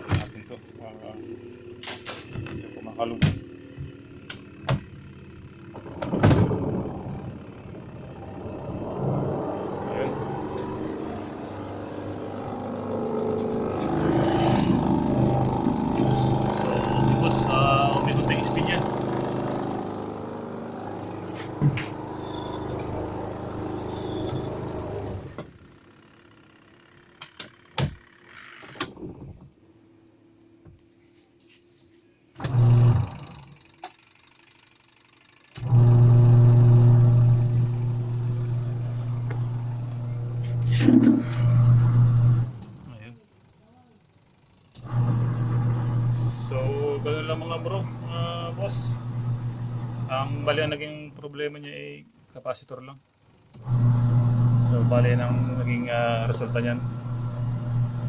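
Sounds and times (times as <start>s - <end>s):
washing machine spin whirr: 0.0s - 30.8s, 32.2s - 58.0s
loud clunk: 5.9s - 6.8s.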